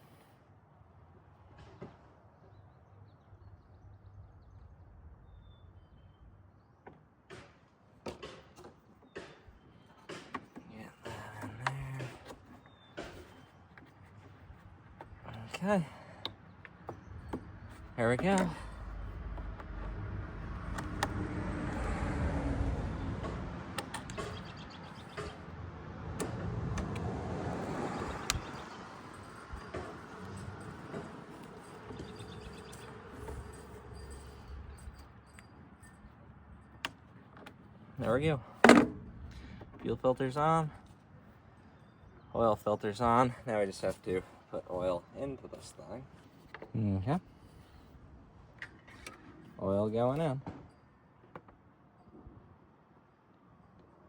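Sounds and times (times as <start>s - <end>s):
clicks and knocks of tools: 23.2s - 25.5s, 48.5s - 49.6s.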